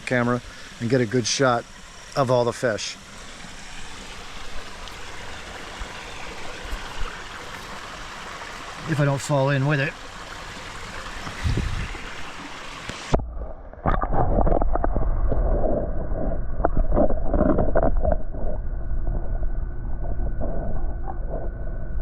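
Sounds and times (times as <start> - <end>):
running pond water: 0.0 - 13.2
underwater sloshing and knocks: 13.0 - 19.3.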